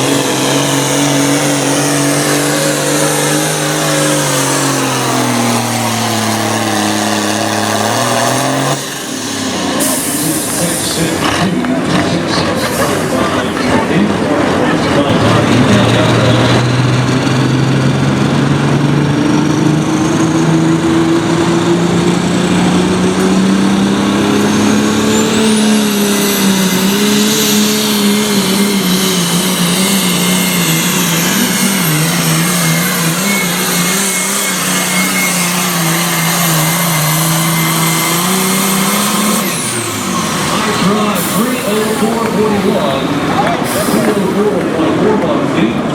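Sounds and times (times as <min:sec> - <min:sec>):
diesel engine running hard: 0:00.0 - 0:45.9
high turbo whistle: 0:24.7 - 0:44.2.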